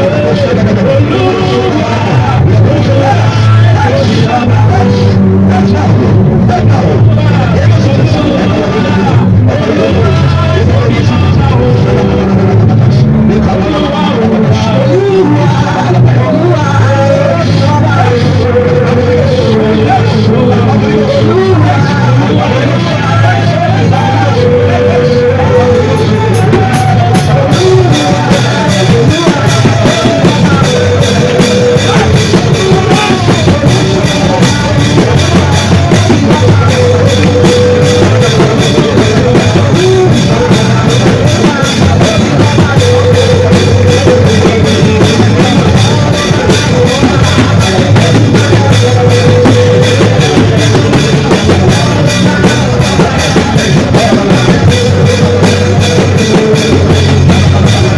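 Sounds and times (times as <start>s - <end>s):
loud band music: 0.0s - 57.9s.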